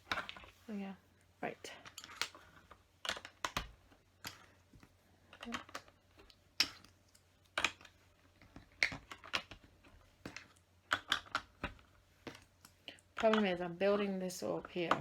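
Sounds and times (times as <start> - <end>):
plastic bricks clicking: 1.8 - 4.5, 5.3 - 13.6.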